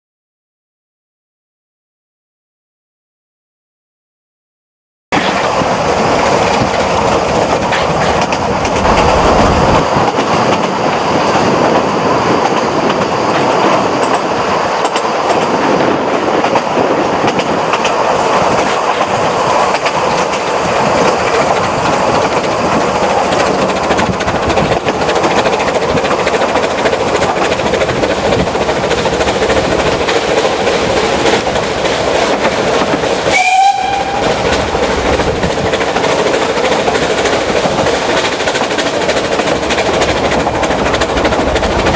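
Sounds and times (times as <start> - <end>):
train carriages rumbling on rails: 5.2 - 41.9.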